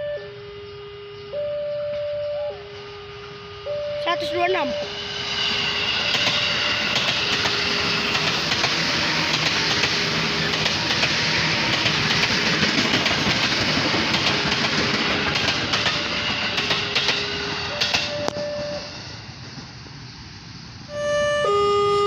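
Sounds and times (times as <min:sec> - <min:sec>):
wheels rumbling on rails: 0:00.0 - 0:22.0
wheels clicking over rail joints: 0:06.0 - 0:18.7.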